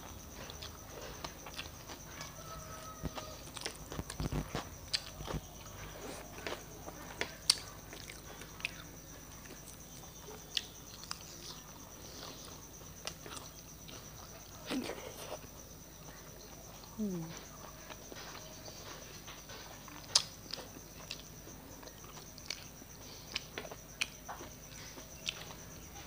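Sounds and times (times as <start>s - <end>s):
person chewing with wet smacks: 0.3s - 2.4s, 3.0s - 15.5s, 16.1s - 25.8s.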